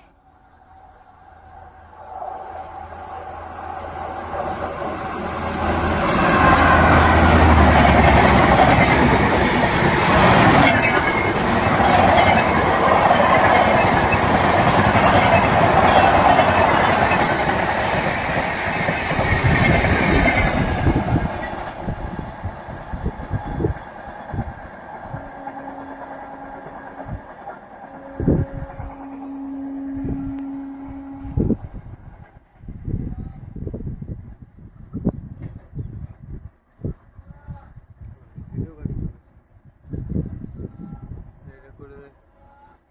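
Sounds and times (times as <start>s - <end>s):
train wheels rumbling on track: 0.0s - 34.4s
steady tone: 25.1s - 32.2s.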